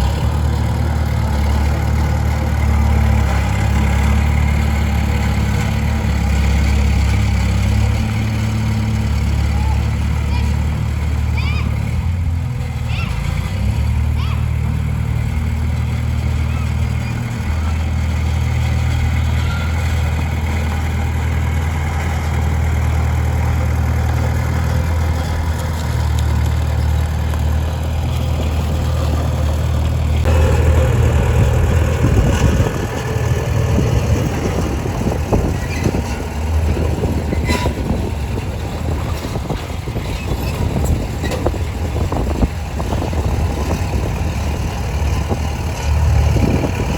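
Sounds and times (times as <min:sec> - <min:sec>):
bulldozer diesel engine droning: 0:00.0 - 0:46.9
knocks and rattles: 0:11.7 - 0:46.9.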